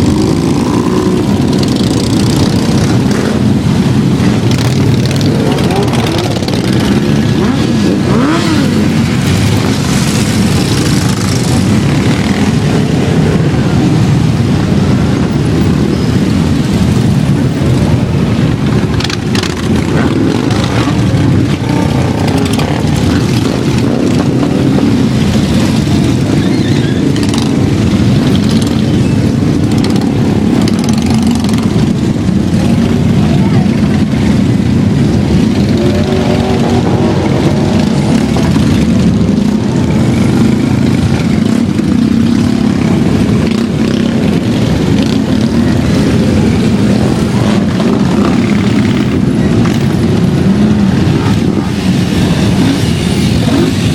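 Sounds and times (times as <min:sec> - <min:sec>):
many motorcycles riding past: 0:00.0 - 0:53.9.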